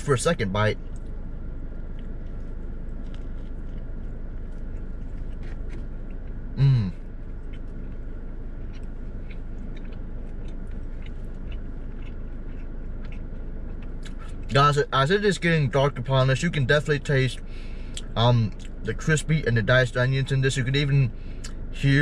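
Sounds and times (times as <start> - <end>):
background hum: 0.0 - 22.0
crunchy chewing: 0.9 - 14.5
man humming mm: 6.6 - 7.0.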